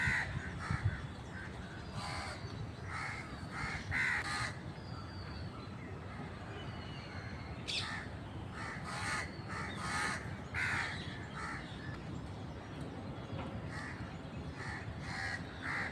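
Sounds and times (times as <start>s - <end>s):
crows cawing: 0.0s - 4.6s, 7.8s - 11.6s, 14.6s - 15.9s.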